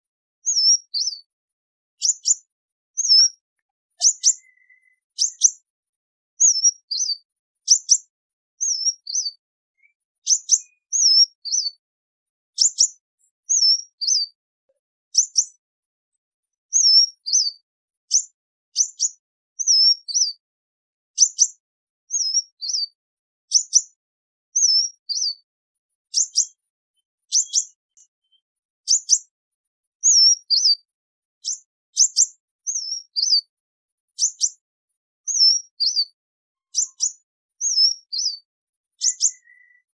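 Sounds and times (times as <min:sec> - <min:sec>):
high thin bird chirps: 0:00.4 - 0:01.3, 0:02.0 - 0:05.7, 0:06.4 - 0:11.8, 0:12.5 - 0:14.4, 0:15.1 - 0:15.6, 0:16.7 - 0:20.4, 0:21.2 - 0:24.0, 0:24.6 - 0:25.5, 0:26.1 - 0:26.6, 0:27.2 - 0:29.3, 0:30.0 - 0:33.5, 0:34.2 - 0:34.6, 0:35.2 - 0:39.9.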